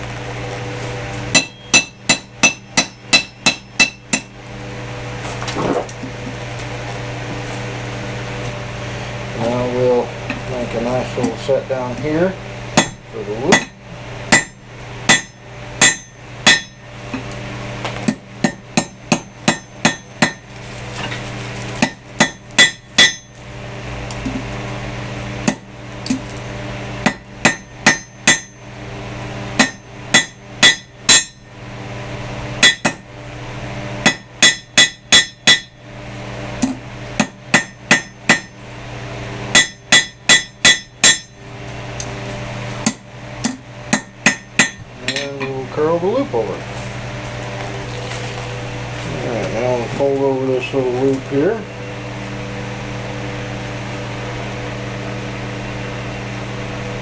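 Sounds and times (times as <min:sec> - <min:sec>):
hammer striking steel on anvil: 0:01.3 - 0:04.3, 0:12.8 - 0:17.2, 0:18.1 - 0:20.5, 0:21.8 - 0:23.4, 0:25.4 - 0:25.7, 0:27.0 - 0:28.6, 0:29.6 - 0:31.5, 0:32.6 - 0:33.0, 0:34.0 - 0:35.8, 0:36.6 - 0:38.6, 0:39.5 - 0:41.4, 0:42.8 - 0:45.6.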